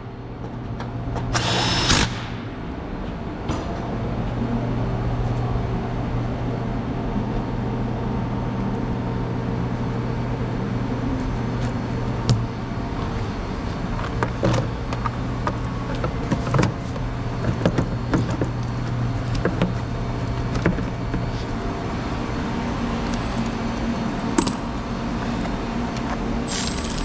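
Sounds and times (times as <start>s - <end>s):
steady low hum: 0.0s - 27.0s
metal tools clicking and clinking: 26.5s - 27.0s.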